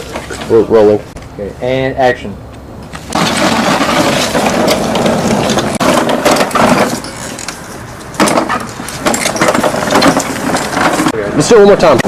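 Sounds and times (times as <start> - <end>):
machine clattering: 3.1 - 7.6, 8.2 - 11.1.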